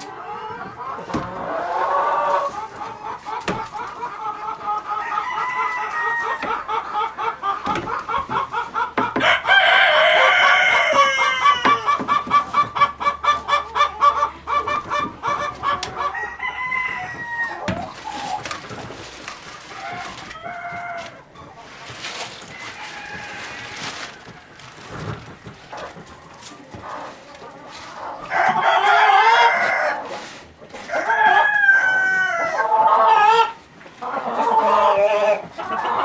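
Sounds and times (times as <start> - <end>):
chickens clucking: 0.0 - 36.0
rooster crowing: 9.2 - 11.8, 16.0 - 17.8, 22.5 - 24.2.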